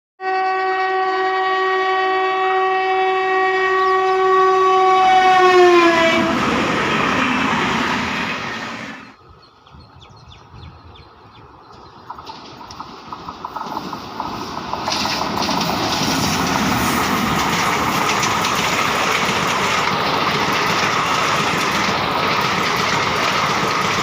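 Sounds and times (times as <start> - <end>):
electric locomotive horn: 0.2 - 9.1
train passing rush: 2.3 - 9.4, 10.4 - 24.0
rail clicks: 5.0 - 9.1, 11.5 - 24.0.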